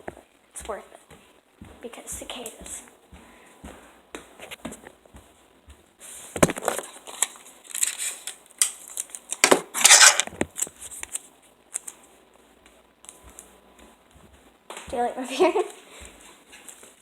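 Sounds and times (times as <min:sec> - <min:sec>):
handling clicks and crackles: 0:06.4 - 0:12.1.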